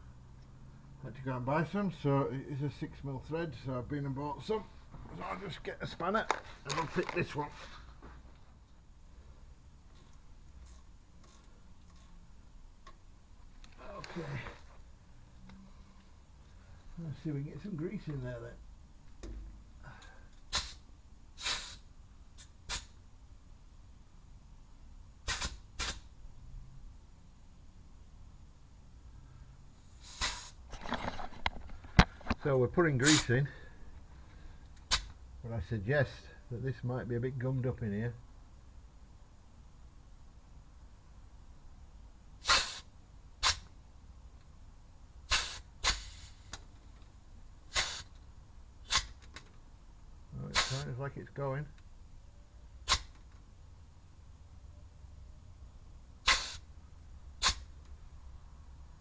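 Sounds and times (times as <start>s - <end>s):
grease gun hissing: 20.5s - 21.9s, 25.2s - 26.1s, 30.0s - 30.6s, 42.4s - 43.7s, 45.3s - 46.6s, 47.7s - 48.2s, 48.8s - 49.2s, 50.5s - 51.0s, 56.2s - 56.7s.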